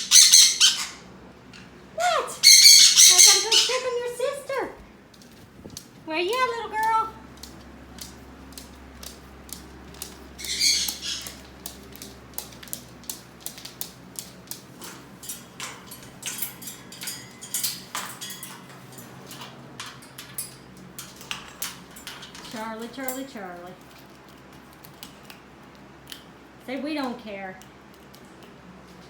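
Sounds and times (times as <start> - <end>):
pet bird call: 2.0 - 4.7, 10.4 - 11.5
light clicks and taps: 5.1 - 26.3.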